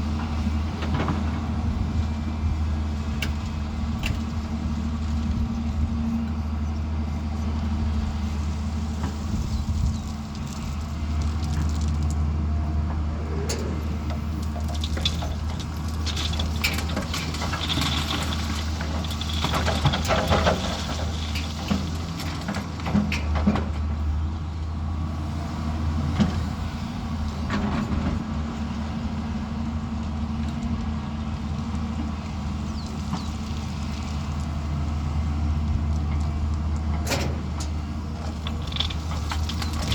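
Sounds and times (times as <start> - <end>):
heavy diesel machine droning: 12.3 - 19.6.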